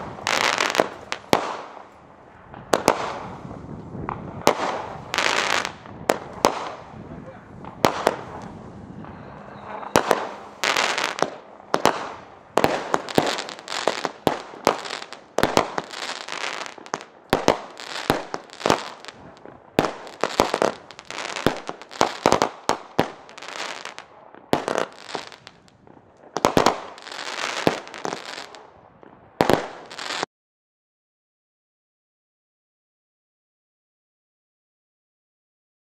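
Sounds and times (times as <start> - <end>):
hissing crackling sparks: 0.0 - 2.0, 9.9 - 28.6
fireworks launches and bursts: 0.0 - 30.3.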